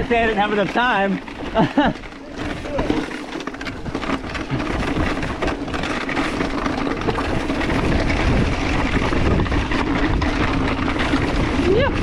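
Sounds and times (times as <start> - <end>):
bike rattling: 0.0 - 12.0
bike tyres rumbling on dirt: 0.0 - 12.0
wind on microphone: 3.8 - 12.0.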